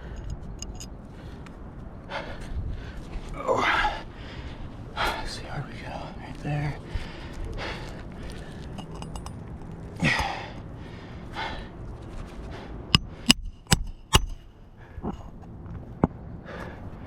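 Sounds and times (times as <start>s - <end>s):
person breathing heavily: 2.1s - 6.2s, 6.8s - 9.2s, 10.0s - 11.8s, 16.4s - 17.0s
hammer striking nail: 13.0s - 14.4s.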